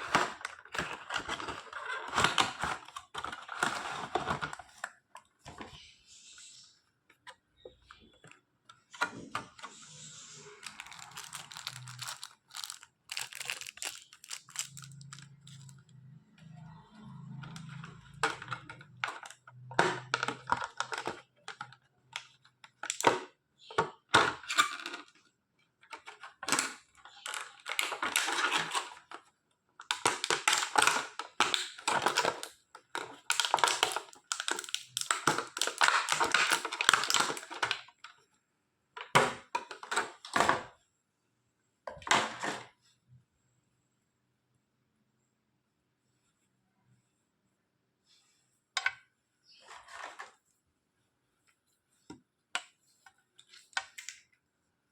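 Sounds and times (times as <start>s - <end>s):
crinkling plastic and cardboard: 0.0s - 5.8s, 10.4s - 16.1s, 17.3s - 38.2s
packaging clicks and taps: 10.6s - 15.8s.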